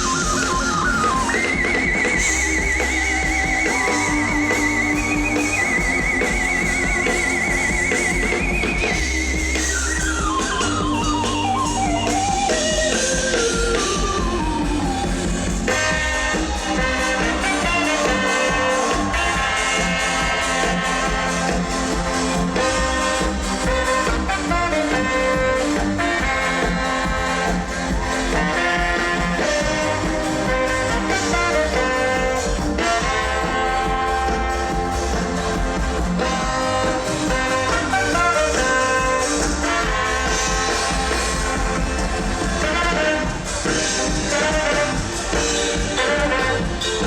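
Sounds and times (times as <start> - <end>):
bass: 0.0 - 47.0
drums: 0.0 - 47.0
guitar: 0.0 - 47.0
live band gospel highlife music: 0.0 - 47.0.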